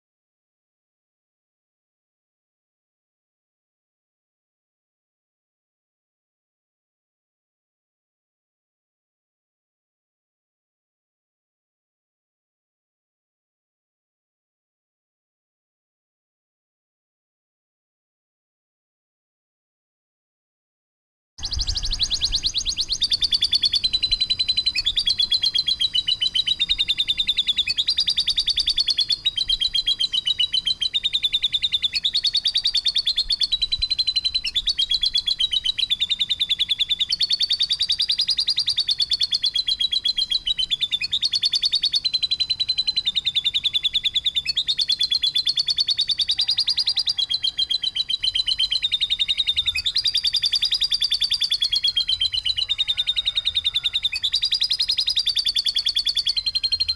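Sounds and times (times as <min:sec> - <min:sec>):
songbird rattling trills: 0:21.4 - 0:56.9.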